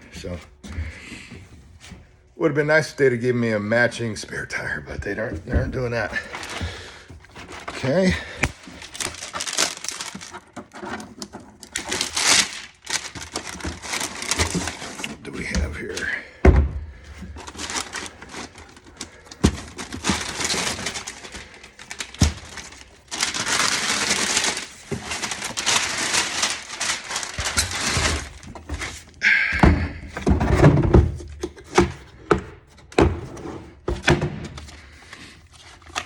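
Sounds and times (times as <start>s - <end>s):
packaging rustling: 5.1s - 16.2s, 17.0s - 29.2s.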